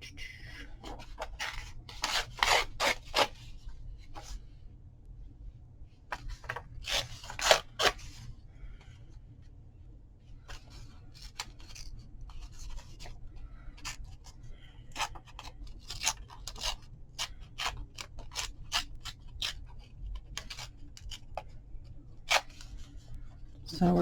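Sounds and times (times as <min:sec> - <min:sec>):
paper rustling: 0:00.6 - 0:04.4
scissors snipping paper: 0:00.8 - 0:03.4, 0:06.1 - 0:08.1, 0:10.5 - 0:21.5, 0:22.2 - 0:22.7.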